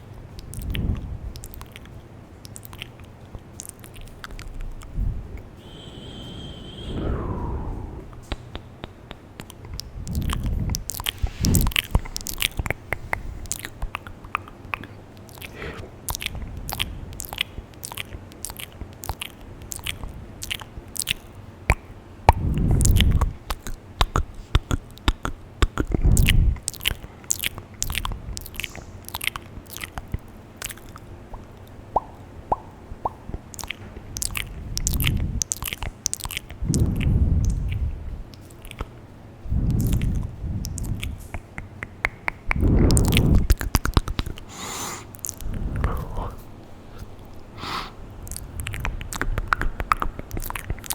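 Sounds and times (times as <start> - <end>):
wet lip and tongue clicks: 0.0 - 5.6, 7.0 - 50.9
low breathy swells: 6.1 - 8.4, 10.0 - 14.4, 44.5 - 48.1.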